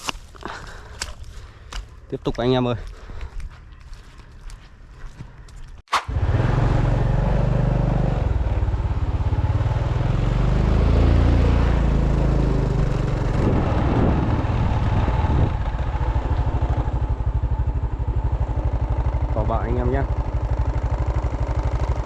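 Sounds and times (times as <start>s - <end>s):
motorbike engine running: 6.1s - 22.0s.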